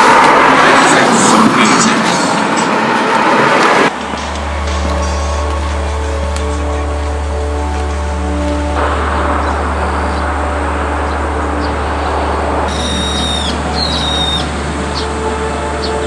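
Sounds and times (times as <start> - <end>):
steady low hum: 0.0 - 16.0
high clear bird calls: 4.0 - 16.0.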